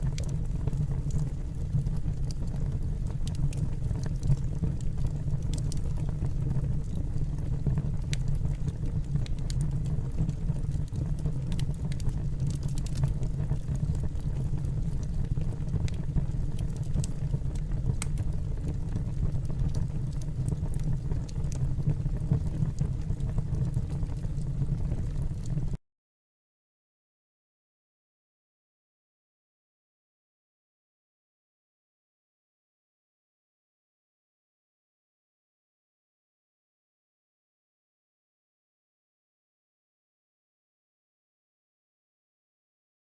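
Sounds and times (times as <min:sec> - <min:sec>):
faint crackling ticks: 0:00.0 - 0:25.8.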